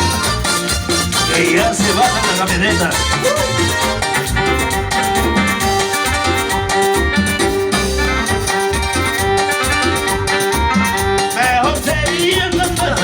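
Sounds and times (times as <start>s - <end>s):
bass: 0.0s - 13.0s
keyboard melody: 0.0s - 13.0s
steady beat: 0.0s - 13.0s
person singing: 1.3s - 4.1s, 11.2s - 13.0s.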